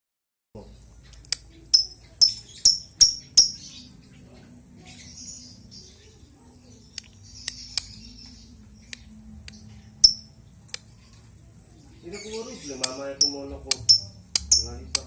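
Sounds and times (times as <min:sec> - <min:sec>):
lovebird chattering softly: 0:01.0 - 0:11.2, 0:11.9 - 0:15.0
lovebird chirping shrilly: 0:01.7 - 0:03.8.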